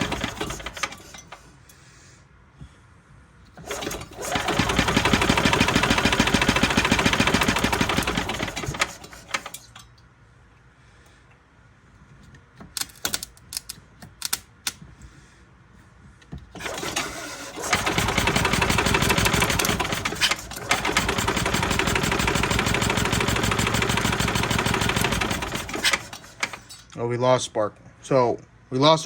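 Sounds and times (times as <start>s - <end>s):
golf cart engine cranking: 0.0s - 1.6s, 3.5s - 10.0s, 16.5s - 27.0s.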